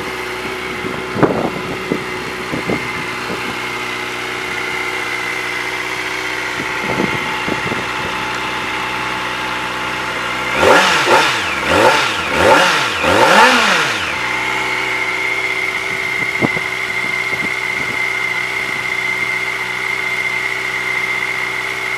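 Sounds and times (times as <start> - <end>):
motorcycle engine idling and revving: 0.0 - 21.9.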